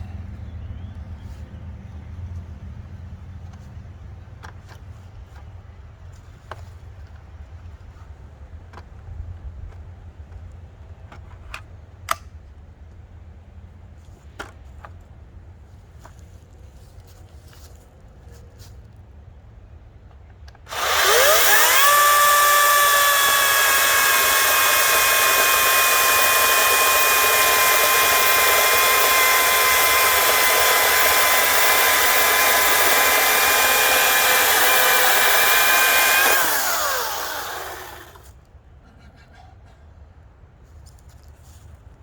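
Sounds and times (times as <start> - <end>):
electric chainsaw whining: 20.7 - 38.3.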